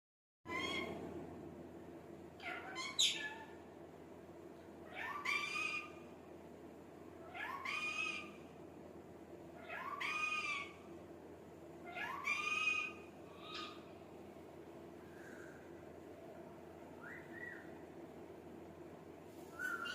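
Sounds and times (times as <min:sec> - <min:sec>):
parrot squawking and calling: 0:00.5 - 0:01.0, 0:02.4 - 0:03.6, 0:04.9 - 0:06.1, 0:07.2 - 0:08.5, 0:09.6 - 0:10.9, 0:11.8 - 0:14.0, 0:19.5 - 0:19.9.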